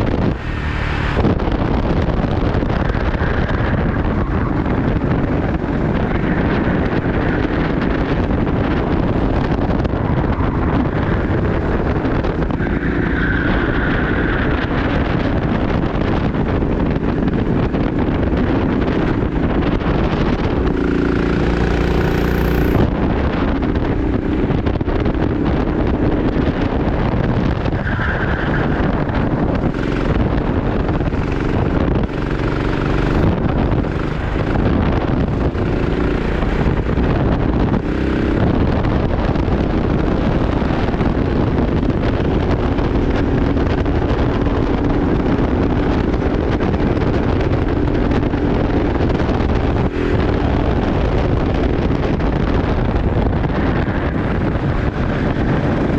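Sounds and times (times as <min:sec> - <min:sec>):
wind noise on microphone: 0:00.0 - 0:55.9
kart engine running: 0:14.2 - 0:55.9.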